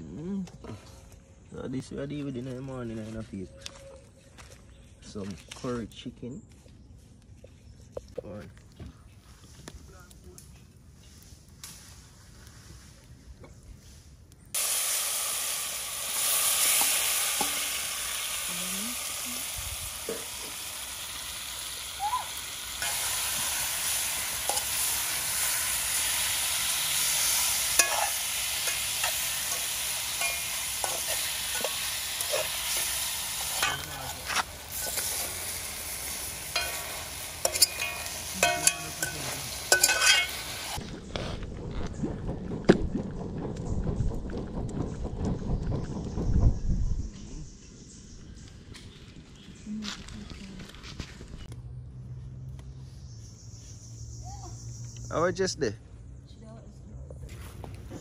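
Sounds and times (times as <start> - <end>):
chicken sizzling in a pot: 14.5 - 40.8
utensil scraping and knocking pot: 27.2 - 40.6.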